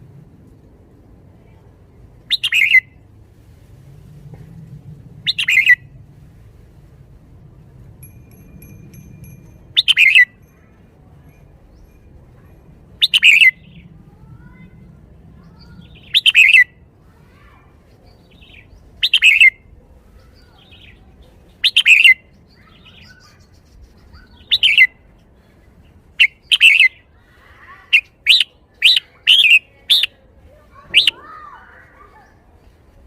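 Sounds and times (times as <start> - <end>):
bird singing whistled phrases: 2.3 - 2.8, 5.3 - 5.8, 9.8 - 10.3, 13.0 - 13.8, 15.8 - 16.7, 18.4 - 19.6, 21.6 - 24.9, 26.2 - 27.0, 28.0 - 30.2, 31.0 - 31.3.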